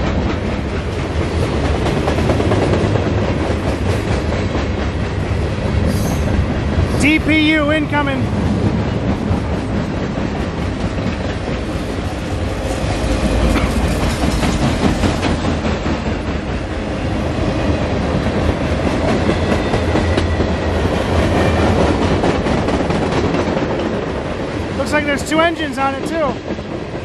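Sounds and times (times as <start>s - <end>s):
train rumbling past: 0.0s - 27.0s
wheels clacking over rail joints: 8.3s - 25.0s.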